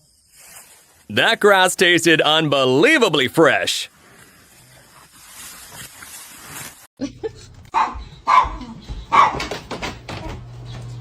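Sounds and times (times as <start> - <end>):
dog barking and whining: 7.7 - 9.6.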